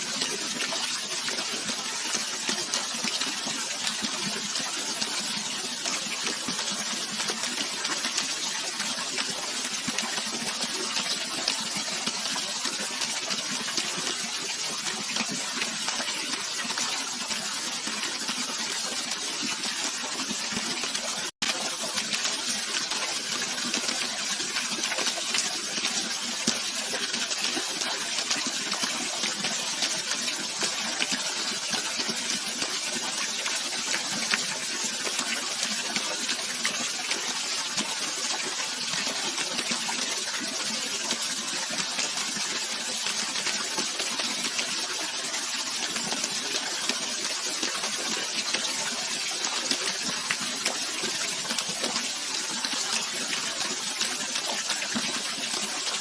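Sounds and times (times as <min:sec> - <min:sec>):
running water splashing: 0:00.0 - 0:56.0.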